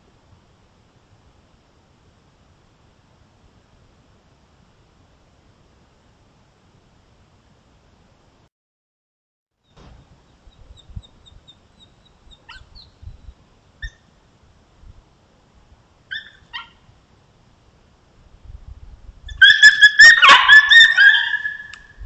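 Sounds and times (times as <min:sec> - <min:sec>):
coyotes yelping: 0:11.2 - 0:13.0, 0:13.8 - 0:14.1, 0:16.1 - 0:16.9, 0:19.3 - 0:22.0.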